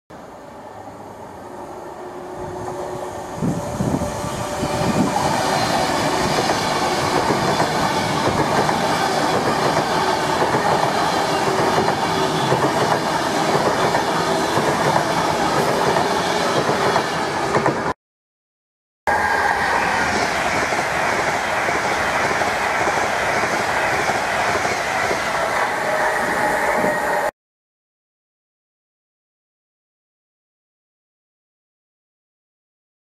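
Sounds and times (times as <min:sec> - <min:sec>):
electric train passing at speed: 0:00.1 - 0:18.0, 0:19.1 - 0:27.3.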